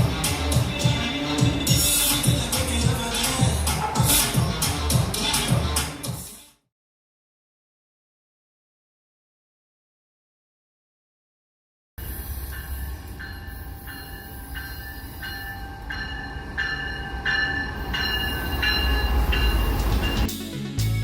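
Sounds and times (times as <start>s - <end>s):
train rumbling on rails: 0.0s - 6.2s, 12.0s - 20.4s
high ringing tone: 12.0s - 20.3s.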